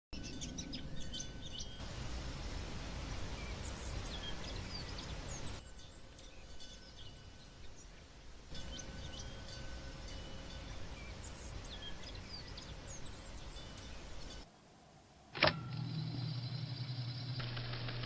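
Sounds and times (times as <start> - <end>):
small birds chirping: 0.2 - 14.5
steady background hiss: 0.2 - 18.0.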